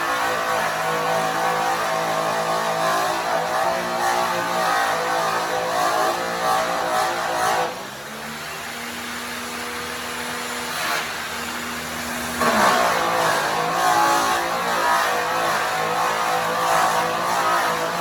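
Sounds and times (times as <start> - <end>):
angle grinder buffing metal: 0.0 - 7.7, 12.0 - 18.0
angle grinder spinning freely: 11.8 - 18.0.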